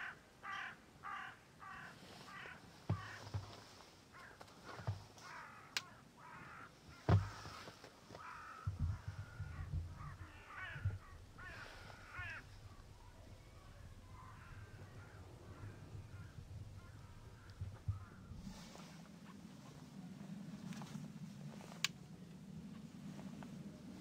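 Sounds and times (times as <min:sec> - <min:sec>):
birds calling: 0:00.0 - 0:19.8
low rumbling: 0:08.7 - 0:24.0.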